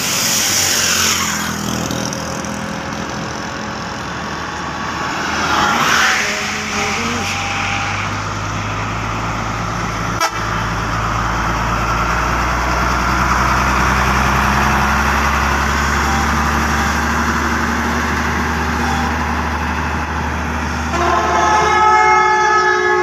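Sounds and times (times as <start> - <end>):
truck diesel engine running: 0.0 - 22.2
loud multi-tone horn: 5.4 - 8.8, 10.1 - 10.7, 20.9 - 23.0.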